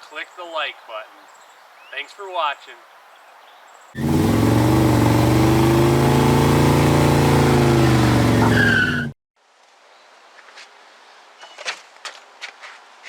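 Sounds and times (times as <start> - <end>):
car engine at high revs: 4.0 - 9.1
tyres squealing: 4.0 - 9.1.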